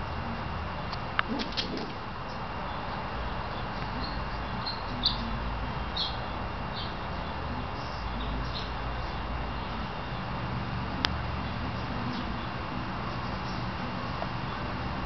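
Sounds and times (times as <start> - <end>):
low hum and hiss: 0.0 - 15.0
high bird chirps: 4.0 - 5.3, 6.0 - 7.3.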